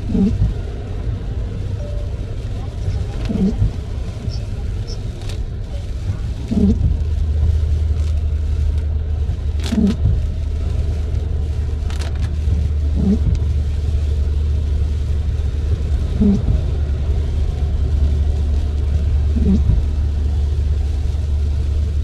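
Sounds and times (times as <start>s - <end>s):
tyre and road rumble: 0.0s - 22.0s
windshield wipers squeaking: 1.9s - 6.9s, 16.2s - 16.6s, 19.4s - 19.8s.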